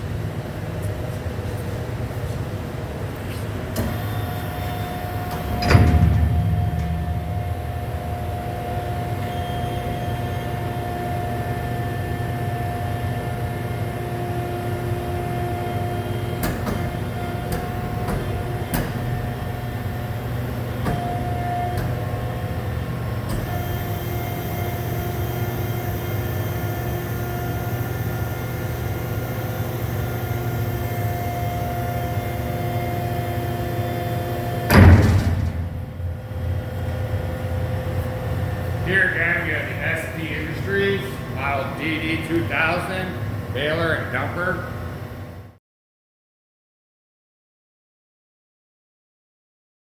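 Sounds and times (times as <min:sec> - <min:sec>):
machinery motor hum: 0:00.0 - 0:45.5
loud machine clunk: 0:03.7 - 0:09.8, 0:16.3 - 0:22.5, 0:33.7 - 0:39.6.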